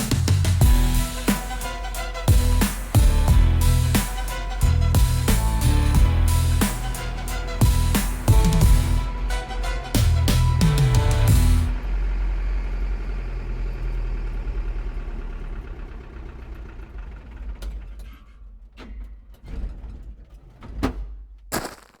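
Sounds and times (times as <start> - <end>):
vehicle engine idling: 10.1 - 17.6.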